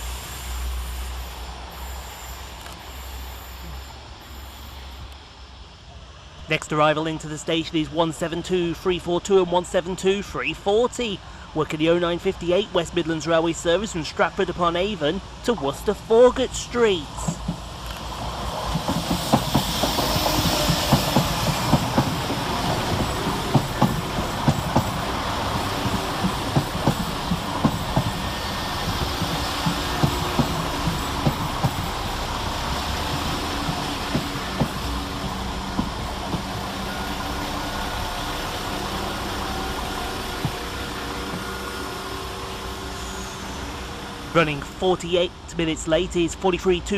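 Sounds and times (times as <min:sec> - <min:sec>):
diesel train running: 0:00.0 - 0:46.9
wheels clicking over rail joints: 0:17.1 - 0:37.6, 0:38.4 - 0:41.7.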